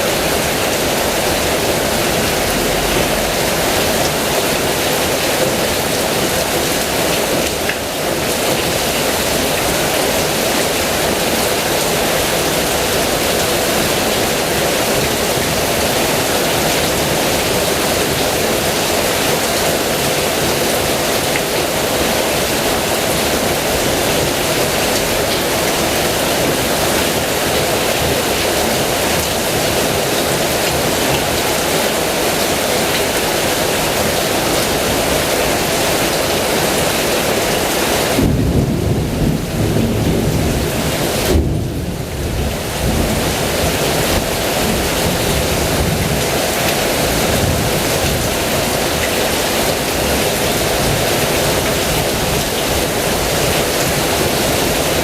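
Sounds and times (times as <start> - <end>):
heavy rain: 0.0 - 55.0
thunder: 38.2 - 43.4.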